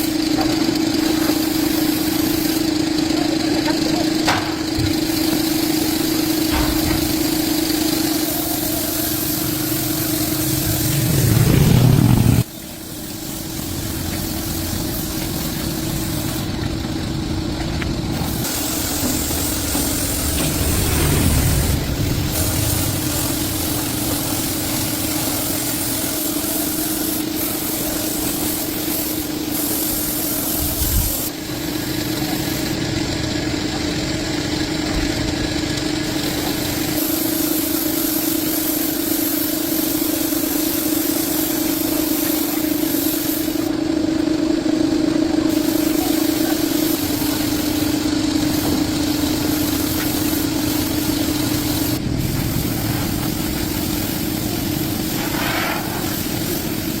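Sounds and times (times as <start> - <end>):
motor humming: 0.0 - 25.8.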